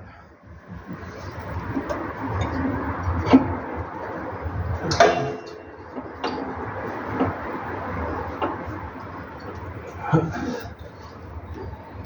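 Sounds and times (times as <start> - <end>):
metallic clank ringing: 4.8 - 6.4.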